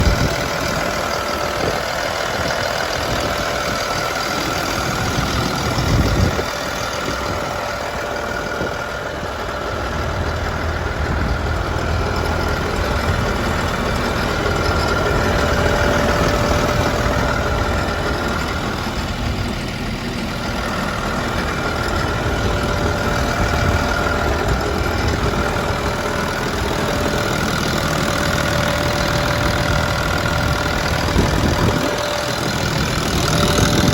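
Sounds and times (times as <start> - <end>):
diesel engine idling: 0.0 - 33.9
steady whine: 0.0 - 33.9.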